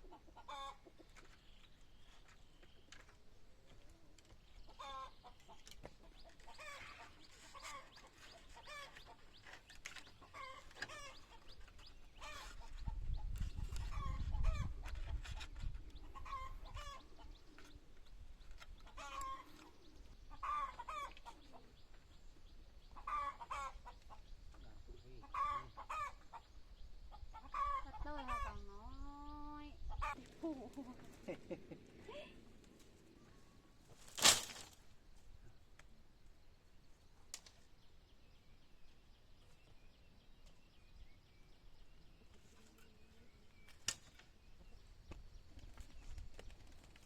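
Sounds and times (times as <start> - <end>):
chickens clucking: 0.0 - 1.6, 3.7 - 22.2, 22.8 - 32.6.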